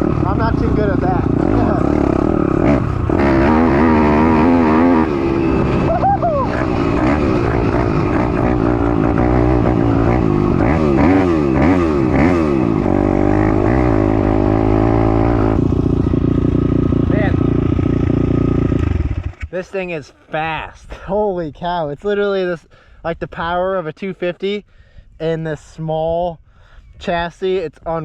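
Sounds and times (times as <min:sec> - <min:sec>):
pit bike engine revving: 0:00.0 - 0:19.5.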